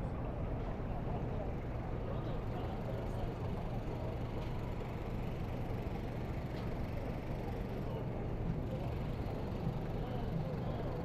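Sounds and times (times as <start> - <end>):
faint distant voices: 0.0 - 11.0.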